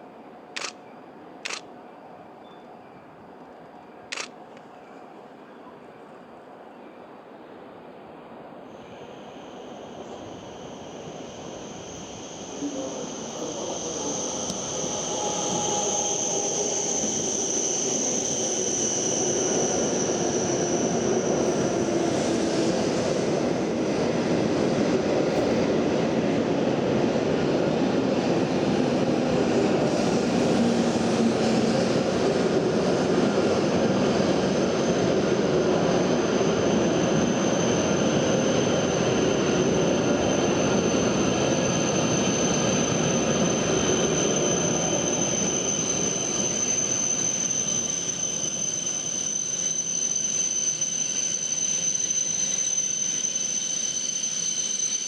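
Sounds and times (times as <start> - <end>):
train rushing noise: 8.7 - 55.0
high steady whine: 8.8 - 22.2.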